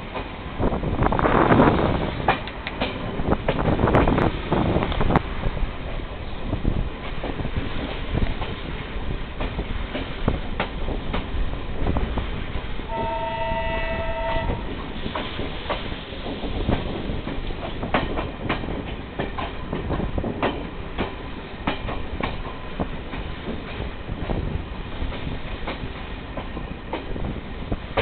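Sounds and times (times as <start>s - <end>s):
train rumbling on rails: 0.0s - 28.0s
two-tone train horn: 12.9s - 14.8s.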